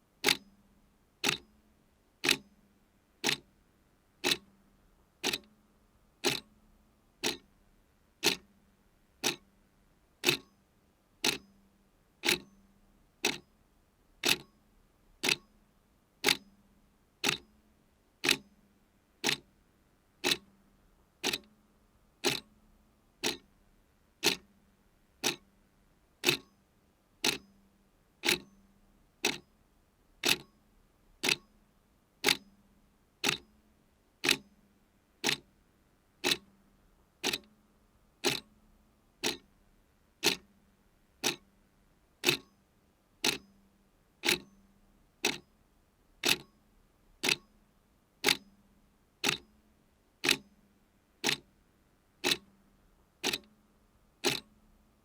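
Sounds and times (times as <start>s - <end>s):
clock ticking: 0.2s - 0.4s, 1.2s - 1.4s, 2.2s - 2.4s, 3.2s - 3.4s, 4.2s - 4.4s, 5.2s - 5.5s, 6.2s - 6.5s, 7.2s - 7.4s, 8.2s - 8.4s, 9.2s - 9.4s, 10.2s - 10.5s, 11.2s - 11.4s, 12.2s - 12.5s, 13.2s - 13.4s, 14.2s - 14.5s, 15.2s - 15.4s, 17.2s - 17.4s, 18.2s - 18.4s, 19.2s - 19.4s, 20.2s - 20.4s, 21.2s - 21.5s, 22.2s - 22.5s, 23.2s - 23.4s, 24.2s - 24.4s, 25.2s - 25.4s, 26.2s - 26.5s, 27.2s - 27.4s, 28.2s - 28.5s, 29.2s - 29.4s, 30.2s - 30.5s, 31.2s - 31.4s, 32.2s - 32.4s, 33.2s - 33.4s, 34.2s - 34.4s, 35.2s - 35.4s, 36.2s - 36.5s, 37.2s - 37.5s, 38.2s - 38.5s, 39.2s - 39.5s, 40.2s - 40.5s, 41.2s - 41.4s, 42.2s - 42.5s, 43.2s - 43.4s, 44.2s - 44.5s, 45.2s - 45.4s, 46.2s - 46.5s, 47.2s - 47.5s, 48.2s - 48.4s, 49.2s - 49.4s, 50.2s - 50.4s, 51.2s - 51.4s, 52.2s - 52.5s, 53.2s - 53.5s, 54.2s - 54.5s.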